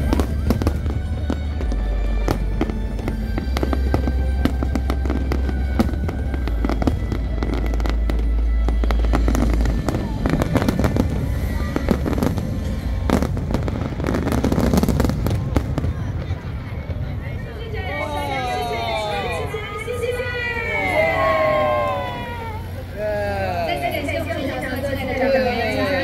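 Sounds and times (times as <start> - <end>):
deep rumble: 0.0 - 17.8
fireworks booming and crackling: 0.0 - 22.9.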